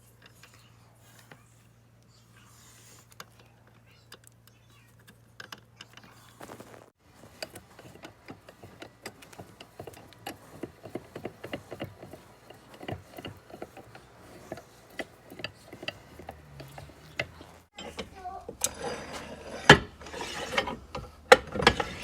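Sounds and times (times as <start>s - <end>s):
vice mechanism clicking and rattling: 7.1s - 22.0s.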